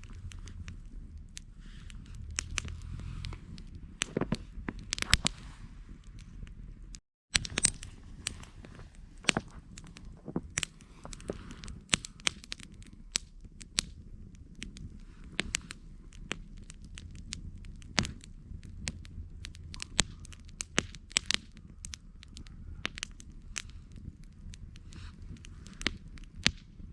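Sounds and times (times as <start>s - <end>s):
low steady fire rumble: 0.0s - 26.9s
wood crackling and popping: 0.0s - 26.9s.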